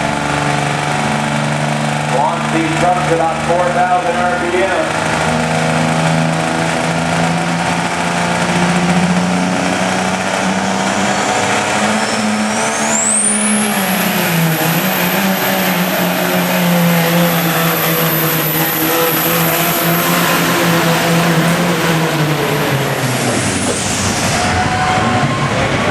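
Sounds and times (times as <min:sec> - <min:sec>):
diesel engine running under load: 0:00.0 - 0:25.9
turbocharger whistle: 0:08.6 - 0:25.9.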